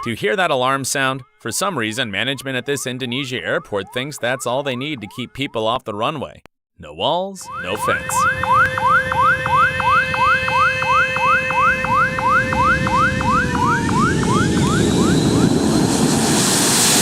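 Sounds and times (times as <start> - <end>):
runway warning alarm whooping: 0.0 - 5.7, 7.4 - 16.1
aircraft engines rushing: 7.6 - 17.0.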